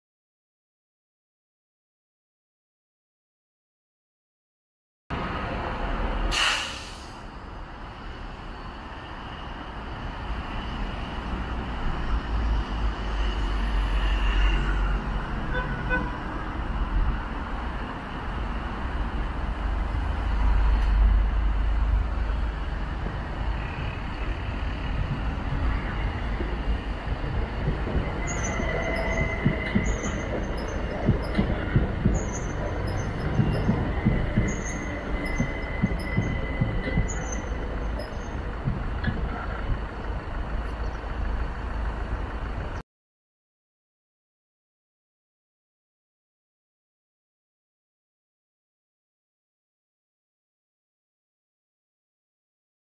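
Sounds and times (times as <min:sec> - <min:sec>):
train rumbling: 0:05.1 - 0:42.8
wheels clicking over rail joints: 0:24.9 - 0:42.8
faint wheel squeal: 0:28.0 - 0:38.5.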